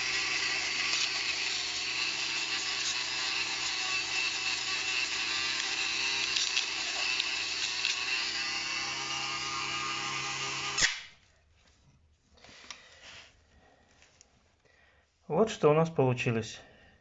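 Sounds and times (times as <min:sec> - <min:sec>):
rotary tool grinding plastic: 0:00.0 - 0:11.2.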